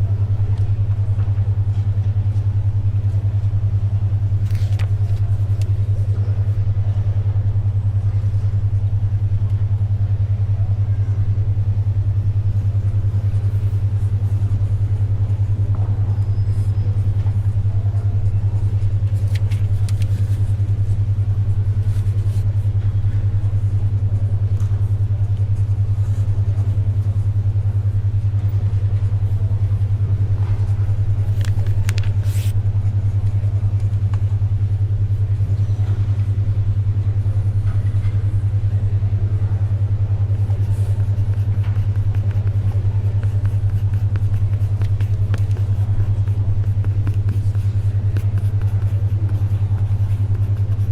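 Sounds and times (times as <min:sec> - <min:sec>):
faint library ambience: 0:00.0 - 0:50.9
low beating hum: 0:00.0 - 0:50.9
paper rustles or pencil scratches: 0:31.4 - 0:32.6, 0:40.5 - 0:50.9.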